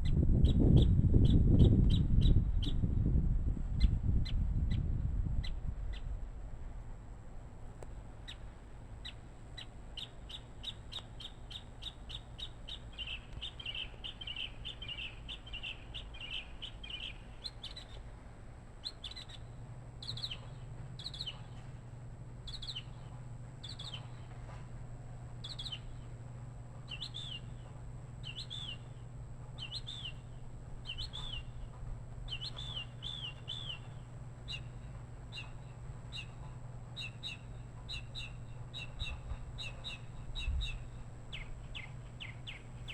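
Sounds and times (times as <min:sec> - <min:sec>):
bird chirping: 0:09.0 - 0:18.0, 0:18.8 - 0:21.6, 0:22.4 - 0:24.3, 0:25.4 - 0:26.1, 0:26.9 - 0:29.0, 0:29.6 - 0:31.7, 0:32.3 - 0:42.9.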